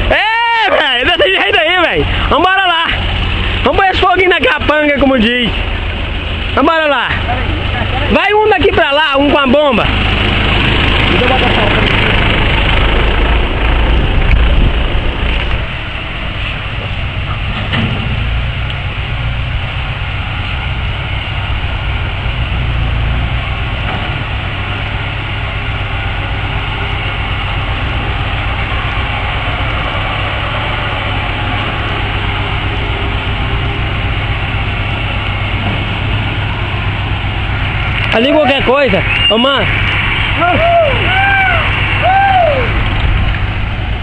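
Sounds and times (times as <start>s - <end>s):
vehicle engine humming: 0.0s - 44.0s
loud rushing rattle: 9.6s - 40.8s.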